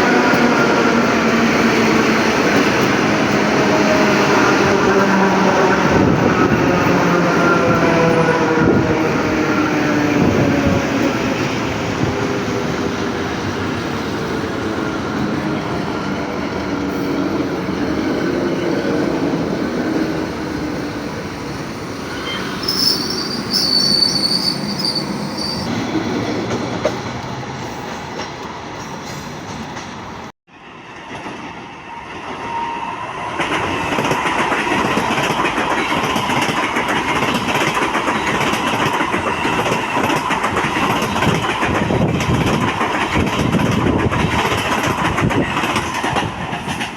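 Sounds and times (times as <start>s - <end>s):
train passing on rails: 0.0s - 46.9s
train wheel squeal: 22.0s - 25.8s, 31.7s - 34.1s.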